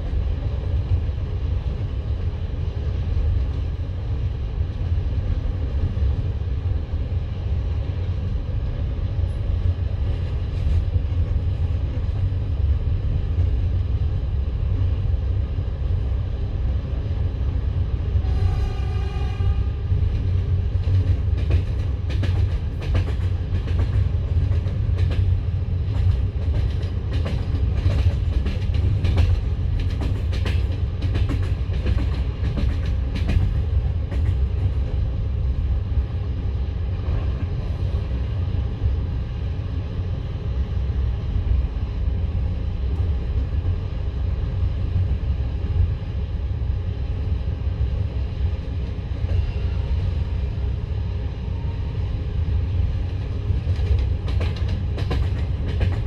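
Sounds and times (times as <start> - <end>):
train carriage rumbling: 0.0 - 56.0
short train horn: 18.2 - 19.9, 49.3 - 50.1.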